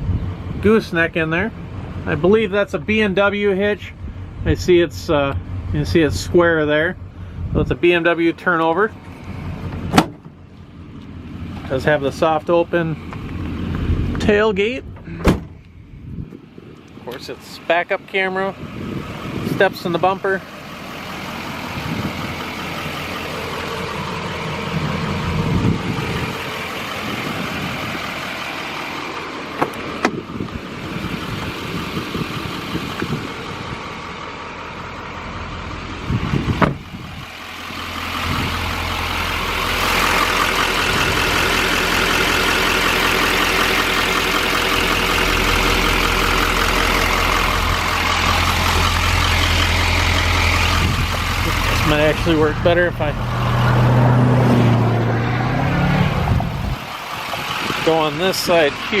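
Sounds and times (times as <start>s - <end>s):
pickup engine idling: 0.0s - 59.0s
sharp engine knocks: 9.7s - 10.4s, 36.4s - 36.9s.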